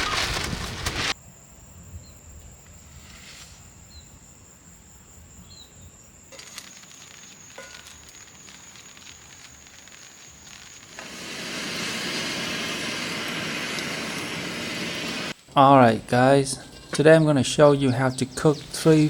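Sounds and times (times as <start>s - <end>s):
faint chirps: 5.4s - 11.0s.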